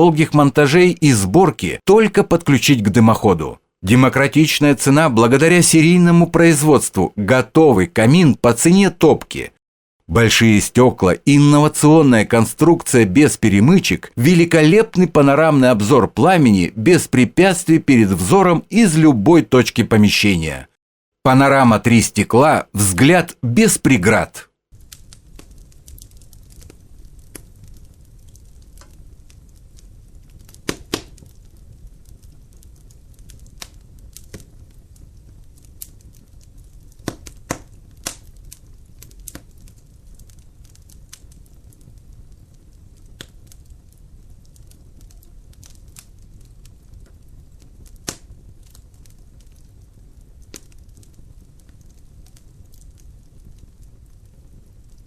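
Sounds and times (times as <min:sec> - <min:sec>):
fire rumbling: 0:00.0 - 0:20.7, 0:21.3 - 0:55.0
fire crackling and popping: 0:21.6 - 0:55.0.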